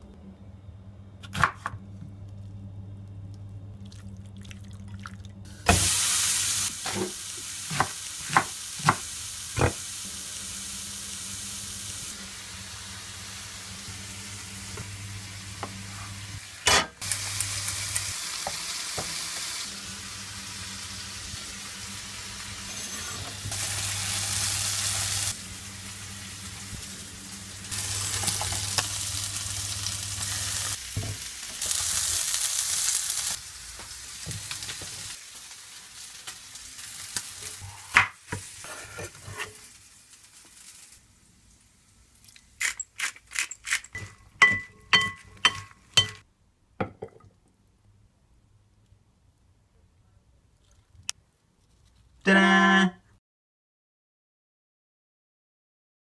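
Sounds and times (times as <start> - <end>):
low steady hum: 0.0 - 5.8
chicken sizzling on a griddle: 5.8 - 42.1.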